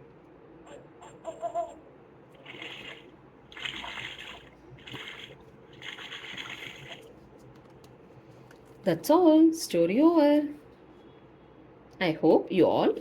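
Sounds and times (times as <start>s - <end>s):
water splashing from small speaker: 2.4s - 7.1s.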